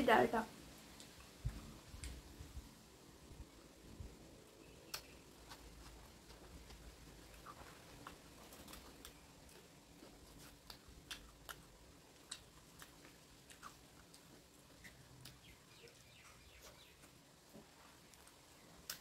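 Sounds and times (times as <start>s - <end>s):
person chewing food: 4.9s - 19.0s.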